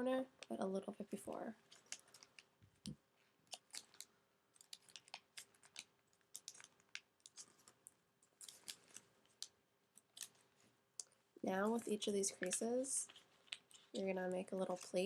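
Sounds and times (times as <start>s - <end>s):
paper being folded and creased: 1.6s - 2.5s, 3.5s - 10.7s.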